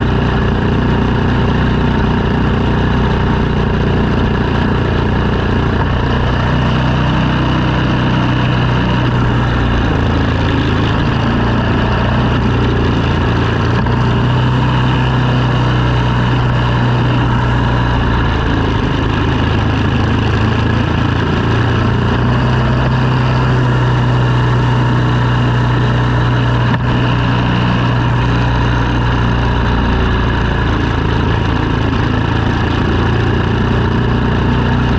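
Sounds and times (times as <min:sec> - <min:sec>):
engine humming: 0:00.0 - 0:34.9.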